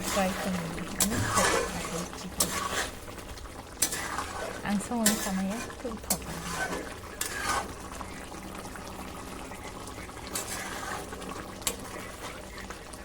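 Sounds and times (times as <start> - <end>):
chicken sizzling in a pan: 0.0 - 13.0
spatula clicking against pan: 5.0 - 5.3.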